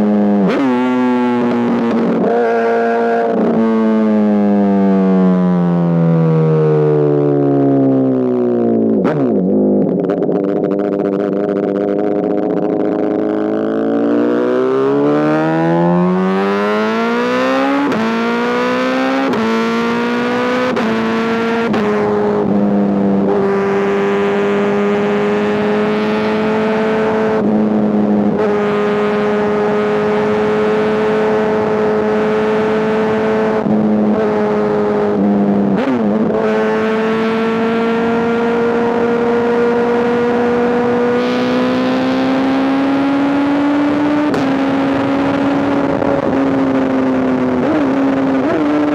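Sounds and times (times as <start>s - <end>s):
motorcycle accelerating and cruising: 0.0s - 48.9s.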